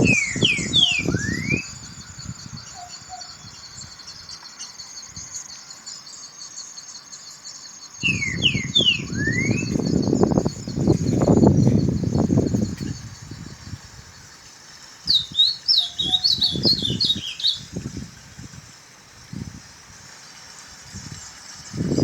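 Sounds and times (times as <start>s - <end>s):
songbird whistling: 0.0s - 13.6s, 15.1s - 17.8s
insects chirring: 0.0s - 22.0s.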